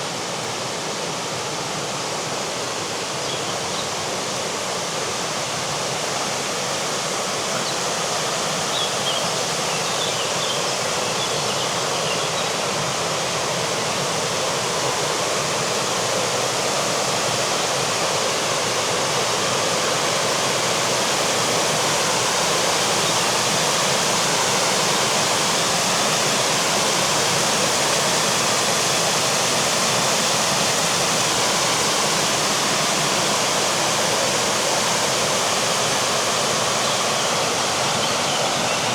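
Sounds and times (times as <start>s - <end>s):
rushing river water: 0.0s - 38.9s
faint bird chirps: 8.7s - 12.6s.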